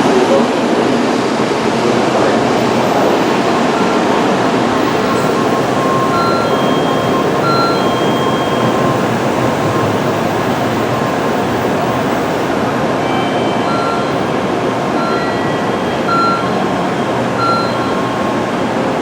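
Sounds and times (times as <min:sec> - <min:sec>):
train rumbling at platform: 0:00.0 - 0:19.0
short high electronic beeps: 0:02.5 - 0:10.0, 0:13.0 - 0:19.0.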